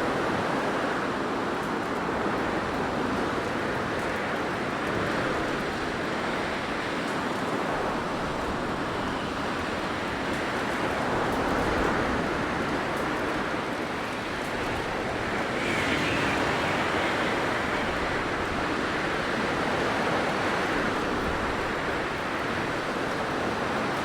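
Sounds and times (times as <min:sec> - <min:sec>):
blizzard wind blowing: 0:14.2 - 0:24.0.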